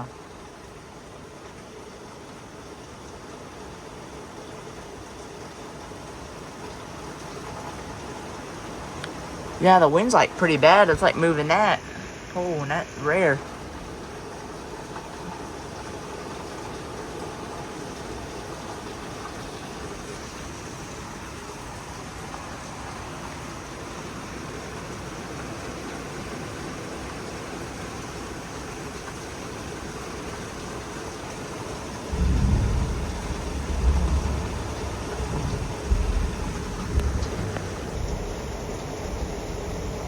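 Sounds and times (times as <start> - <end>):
heavy rain pouring: 0.0 - 40.0
wind buffeting microphone: 32.1 - 40.0.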